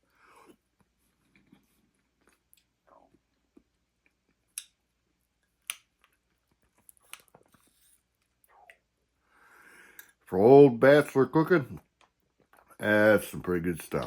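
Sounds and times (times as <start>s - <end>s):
person chewing: 5.6s - 8.8s.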